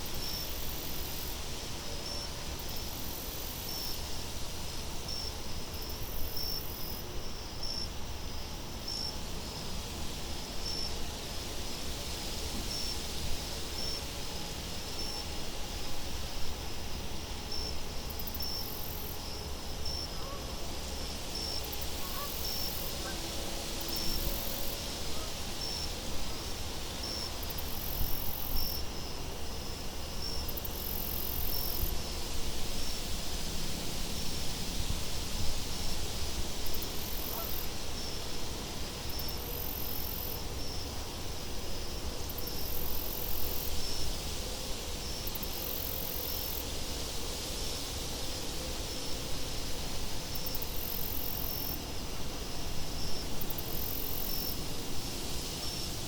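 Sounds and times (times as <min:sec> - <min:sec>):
crickets chirping: 0:00.0 - 0:56.0
wind hiss: 0:00.0 - 0:56.0
high insect trills: 0:12.4 - 0:56.0.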